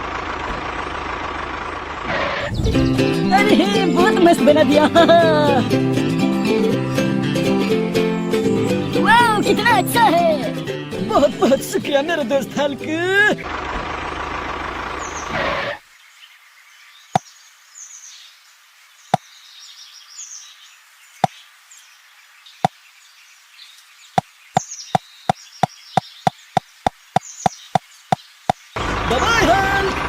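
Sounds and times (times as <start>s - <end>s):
high bird chirps: 2.4s - 3.4s, 24.0s - 28.8s.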